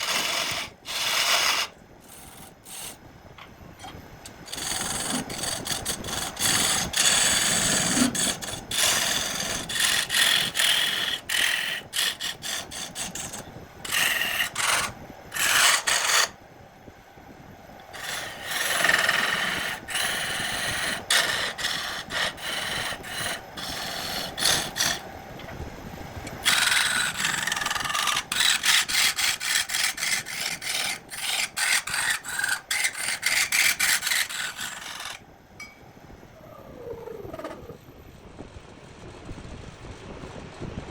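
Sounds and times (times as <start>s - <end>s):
hand scraping of a workpiece: 0.0s - 3.0s.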